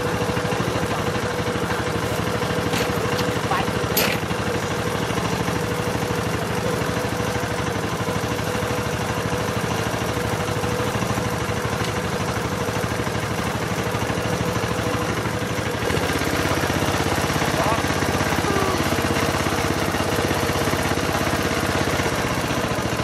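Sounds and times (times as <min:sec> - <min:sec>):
small engine chugging: 0:00.0 - 0:23.0.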